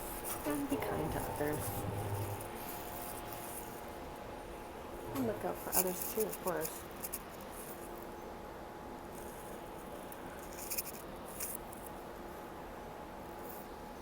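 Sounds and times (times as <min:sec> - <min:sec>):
streetcar interior hum: 0:00.0 - 0:03.1.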